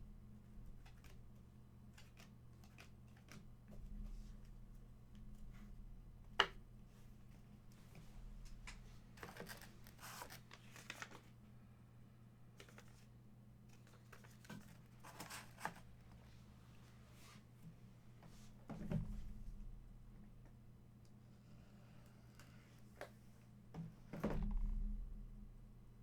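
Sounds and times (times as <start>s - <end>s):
steady low hum: 24.3s - 26.0s.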